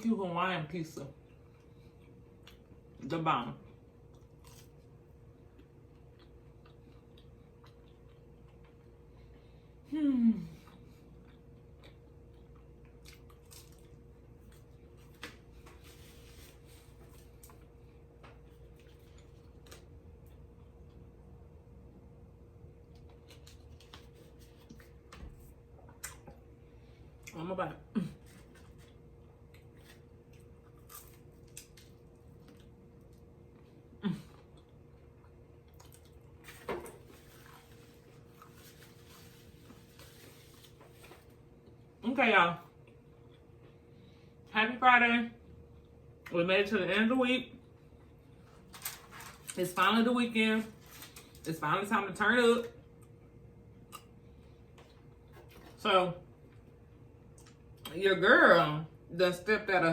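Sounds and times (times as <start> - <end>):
faint steady hum: 0.0 - 59.9
quiet eating sounds: 0.9 - 42.0, 42.6 - 44.5, 45.4 - 46.9, 47.5 - 59.0
chewing with mouth clicks: 1.2 - 2.8, 4.0 - 9.3, 10.6 - 15.3, 28.3 - 33.7, 34.3 - 36.5.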